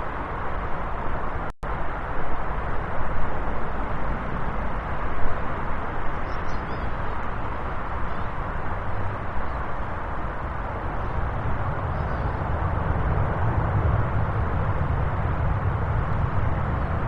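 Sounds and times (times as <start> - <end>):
jet engines roaring: 7.2 - 17.0.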